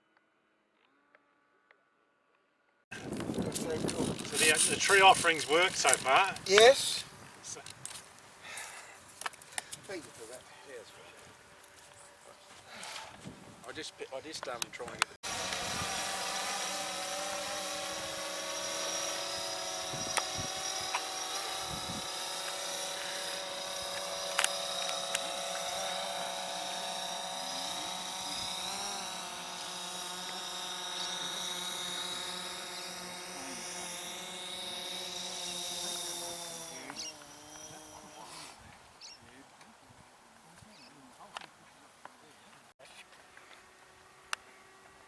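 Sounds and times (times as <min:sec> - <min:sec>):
model plane motor whine: 0:02.9 - 0:12.0, 0:12.6 - 0:39.4, 0:42.9 - 0:45.0
sharp ticks: 0:18.8 - 0:26.0.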